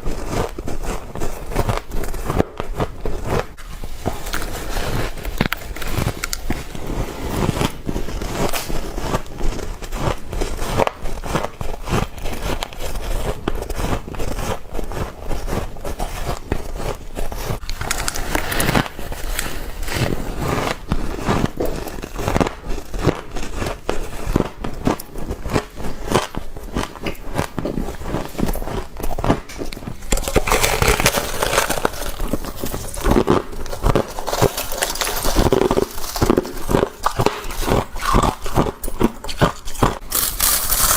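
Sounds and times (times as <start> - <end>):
crunching frost: 25.5 - 40.9.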